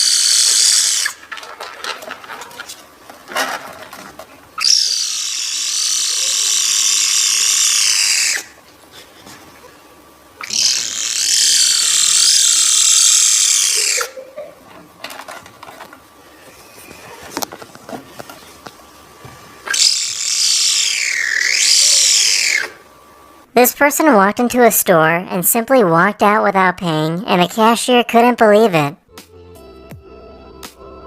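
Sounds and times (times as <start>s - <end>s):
cat making high wavering calls: 4.6s - 8.5s, 10.4s - 14.2s, 19.7s - 22.8s.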